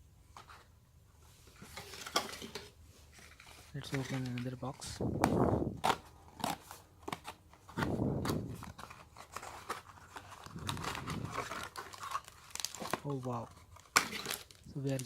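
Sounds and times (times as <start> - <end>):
packaging scraping and rustling: 1.4 - 15.0.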